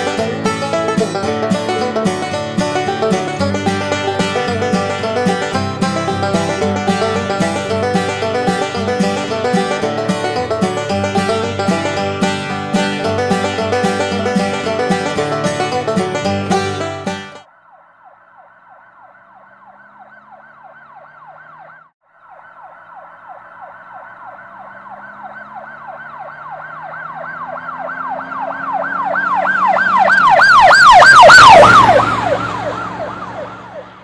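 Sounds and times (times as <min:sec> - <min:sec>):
emergency siren yelping: 0:00.0 - 0:34.0.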